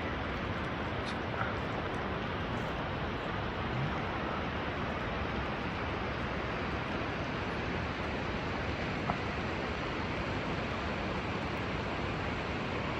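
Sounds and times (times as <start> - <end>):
steady rain falling: 0.0 - 12.9.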